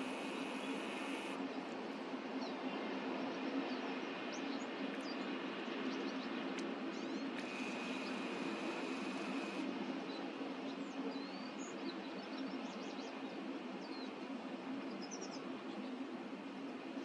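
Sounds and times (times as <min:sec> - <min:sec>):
finches chirping: 0:00.0 - 0:01.4
wind: 0:00.0 - 0:17.0.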